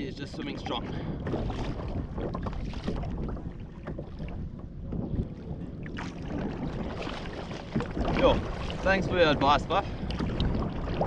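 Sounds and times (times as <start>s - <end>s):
water splashing against a hull: 0.0s - 11.0s
wind buffeting microphone: 0.0s - 11.0s
small knocks on a hull: 1.2s - 8.9s.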